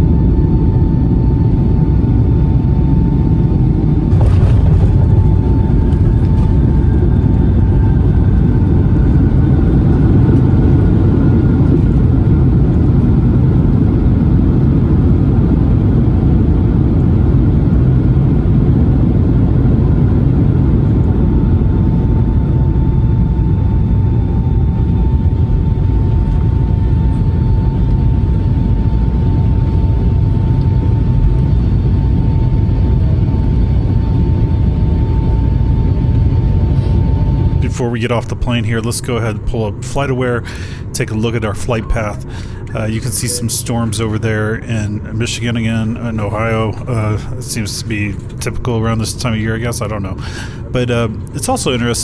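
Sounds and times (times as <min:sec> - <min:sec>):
airliner cabin rumble: 0:00.0 - 0:52.0
steady engine whine: 0:00.0 - 0:52.0
whine falling in pitch: 0:04.0 - 0:09.6.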